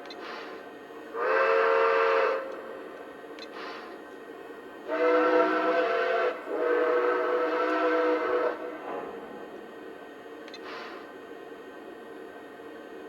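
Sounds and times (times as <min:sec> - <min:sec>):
model train steam whistle: 0:01.1 - 0:02.7, 0:04.8 - 0:09.4.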